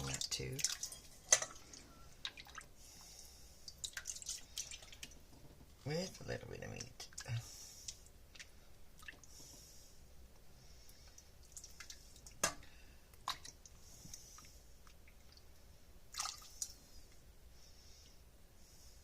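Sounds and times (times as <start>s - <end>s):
wet drips and squishes: 0.0s - 2.7s, 3.6s - 5.2s, 6.6s - 9.4s, 11.0s - 16.8s.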